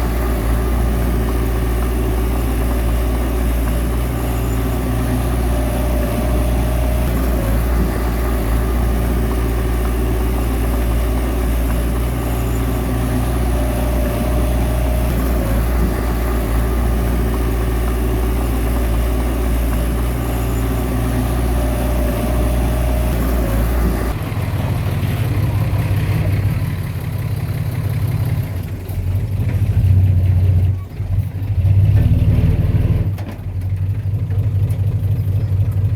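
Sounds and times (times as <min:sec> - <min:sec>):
diesel machinery running: 0:00.0 - 0:35.9.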